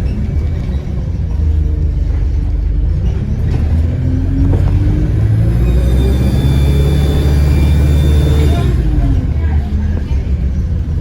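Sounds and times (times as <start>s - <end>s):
diesel engine pulling under load: 0.0s - 11.0s
high-pitched turbo whistle: 5.6s - 8.8s.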